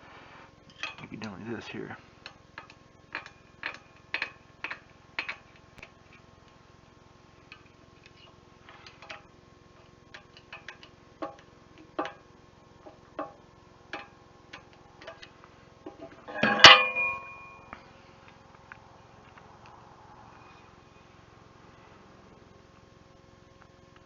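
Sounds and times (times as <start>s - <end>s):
metal tools clinking: 0.7s - 1.4s, 16.0s - 17.7s
loud ringing metal clang: 16.2s - 17.7s.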